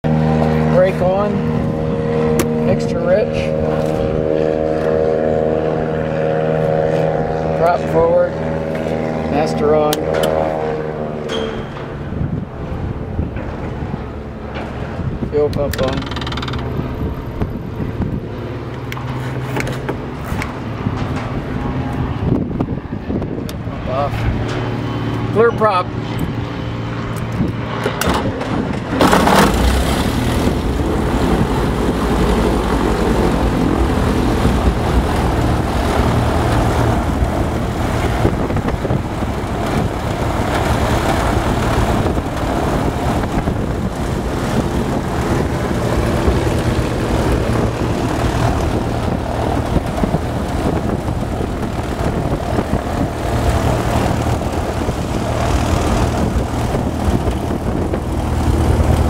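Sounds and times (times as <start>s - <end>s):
aircraft engine running: 0.0s - 59.0s
starter cranking: 15.5s - 17.1s.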